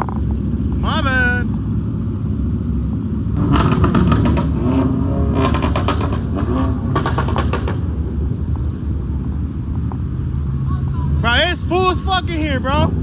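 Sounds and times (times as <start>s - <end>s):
car engines idling: 0.0s - 13.0s
rapid crackling clatter: 5.4s - 7.9s.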